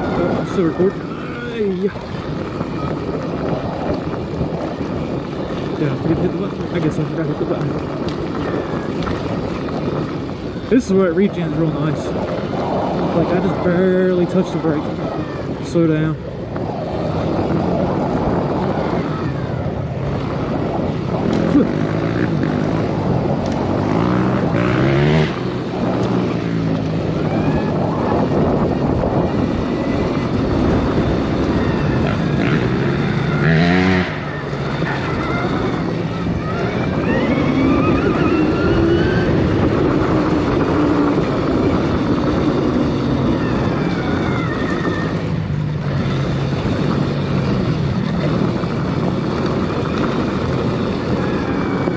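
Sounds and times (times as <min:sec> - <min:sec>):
steady rush of noise: 0:00.0 - 0:51.9
electric dirt bike motor whining: 0:12.2 - 0:51.9.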